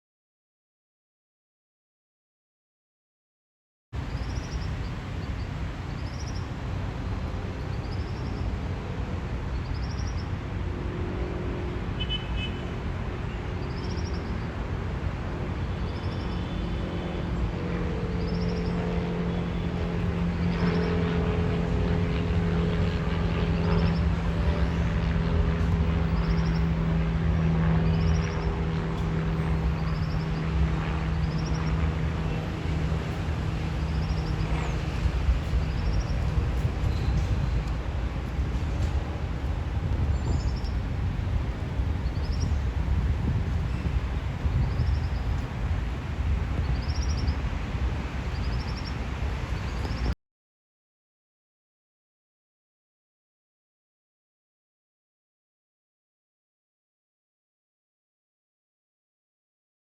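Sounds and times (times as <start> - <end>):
aircraft engine drone: 4.0 - 50.2.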